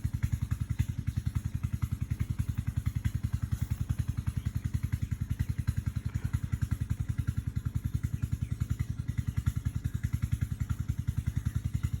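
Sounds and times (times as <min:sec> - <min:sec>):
engine idling with rapid throb: 0:00.0 - 0:12.0
light rattle: 0:00.1 - 0:09.6.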